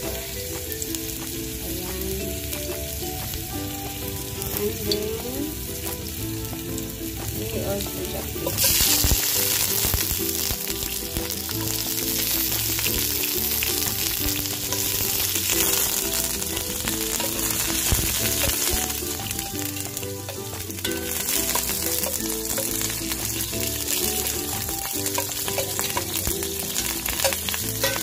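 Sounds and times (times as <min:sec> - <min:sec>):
aromatics sizzling in hot oil: 0:00.0 - 0:28.0
background music: 0:00.0 - 0:28.0
spoon stirring in pot: 0:10.8 - 0:28.0.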